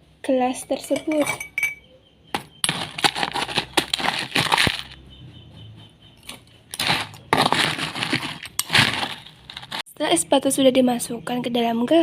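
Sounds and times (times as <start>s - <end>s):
ice cubes clinking in glass: 2.6s - 5.0s, 6.7s - 9.8s.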